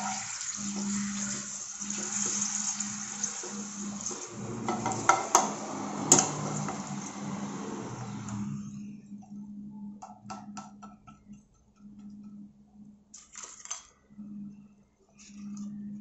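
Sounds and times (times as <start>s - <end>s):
sizzling in hot oil: 0.0s - 8.4s.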